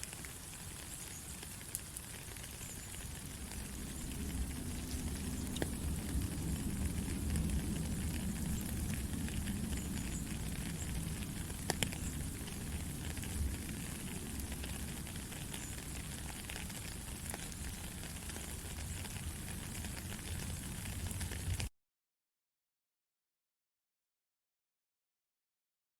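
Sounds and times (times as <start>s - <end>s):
rain falling hiss: 0.0s - 21.7s
deep low rumble: 3.2s - 16.2s.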